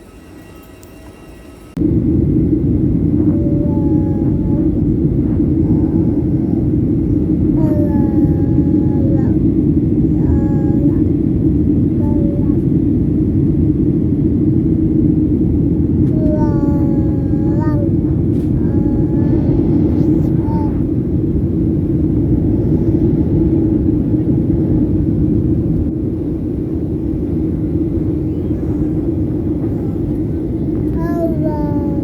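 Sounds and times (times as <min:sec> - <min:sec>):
airliner cabin rumble: 0:00.0 - 0:32.0
baby vocal calls: 0:03.3 - 0:04.8, 0:05.6 - 0:09.5, 0:10.1 - 0:11.1, 0:12.0 - 0:12.7, 0:16.1 - 0:20.9, 0:28.1 - 0:32.0.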